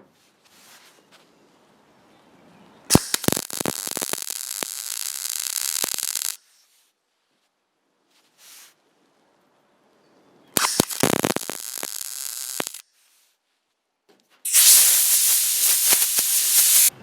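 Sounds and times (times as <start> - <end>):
mig welder crackling: 2.9 - 6.5, 10.6 - 12.8, 14.5 - 17.0.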